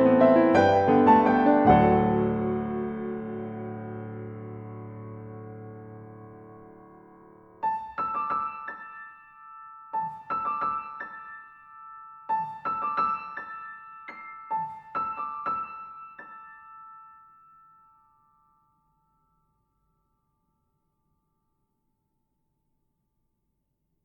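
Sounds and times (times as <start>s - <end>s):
high piano melody: 0.0s - 18.9s.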